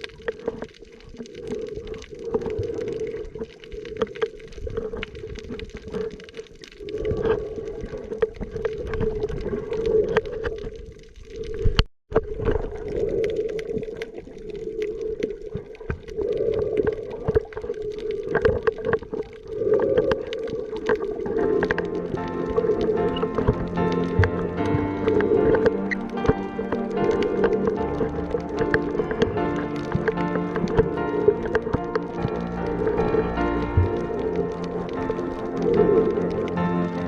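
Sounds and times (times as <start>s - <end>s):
water sloshing: 0.0s - 37.0s
muffled underwater hum: 11.4s - 37.0s.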